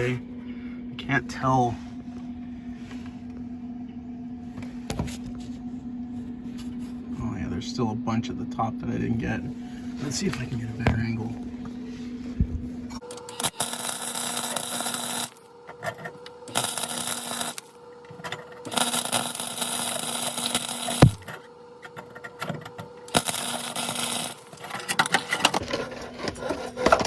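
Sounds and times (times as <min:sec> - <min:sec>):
welder crackling and buzzing: 0:12.9 - 0:27.0
sharp knock: 0:21.0 - 0:21.3.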